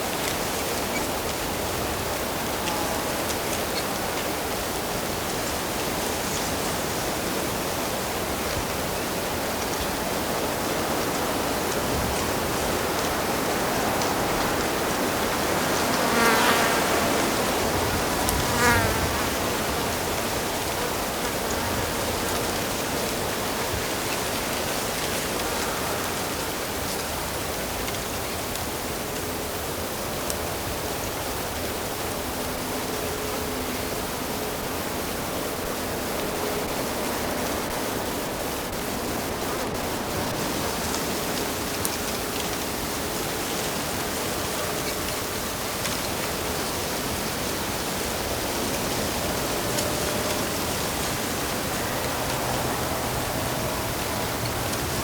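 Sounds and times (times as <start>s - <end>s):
insect buzzing past: 15.3s - 22.0s.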